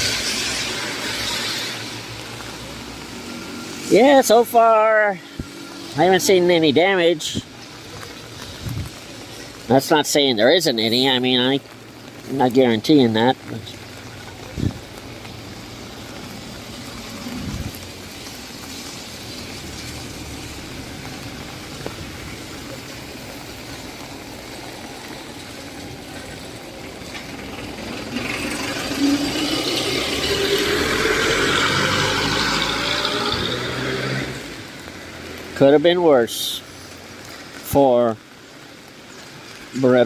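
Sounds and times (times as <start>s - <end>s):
heavy rain hiss: 0.0s - 40.0s
tyres hissing on wet road: 0.0s - 40.0s
vehicle engine speeding up: 26.8s - 35.3s.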